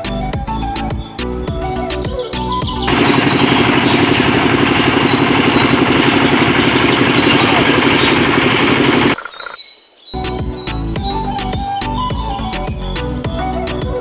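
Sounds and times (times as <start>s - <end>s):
small engine chugging: 2.9s - 9.6s.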